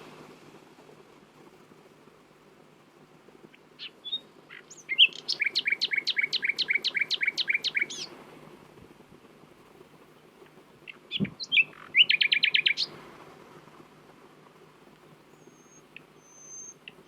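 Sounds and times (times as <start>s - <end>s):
nightingale singing: 3.5s - 8.1s, 10.4s - 13.0s, 15.0s - 17.0s.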